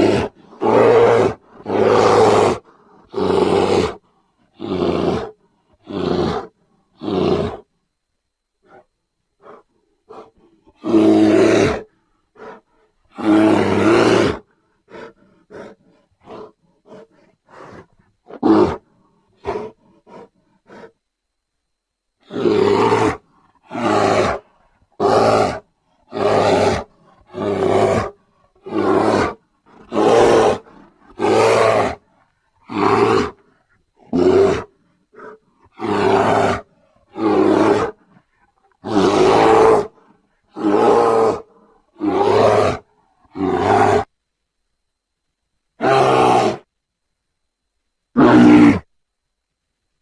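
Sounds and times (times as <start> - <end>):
bear grunting: 0.0 - 7.7, 8.6 - 21.0, 22.2 - 44.1, 48.2 - 48.9
bear roaring: 0.0 - 7.7, 9.4 - 20.9, 22.2 - 44.1, 45.8 - 46.7, 48.2 - 48.9.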